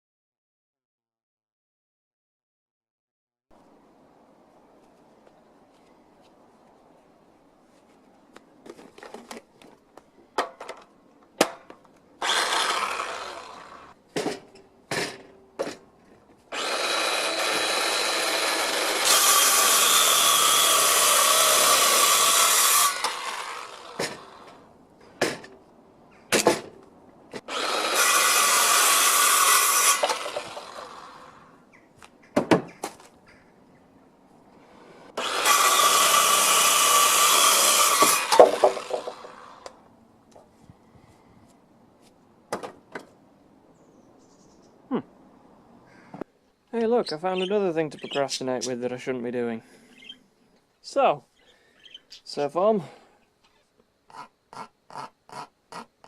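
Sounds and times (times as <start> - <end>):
power tool running: 12.2 - 14.0, 16.5 - 24.6, 27.5 - 31.5, 35.2 - 39.8.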